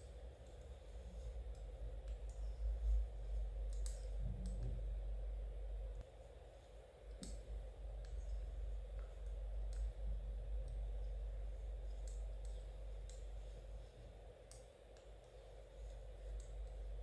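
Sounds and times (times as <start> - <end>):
low background rumble: 0.0 - 17.0
knitting needles clicking: 3.6 - 4.8, 7.1 - 7.4, 11.8 - 13.4.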